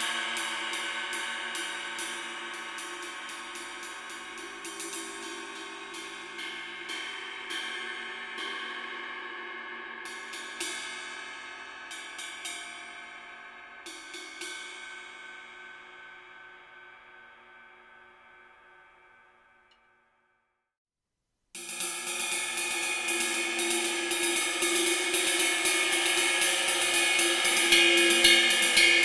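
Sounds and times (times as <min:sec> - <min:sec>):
cymbal struck and ringing: 0:21.6 - 0:29.0.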